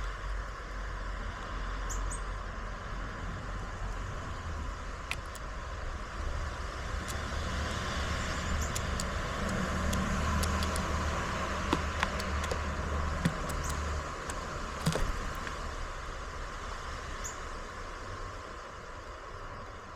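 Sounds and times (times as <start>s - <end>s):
sharp clicks and taps: 5.1s - 5.4s, 7.0s - 15.6s.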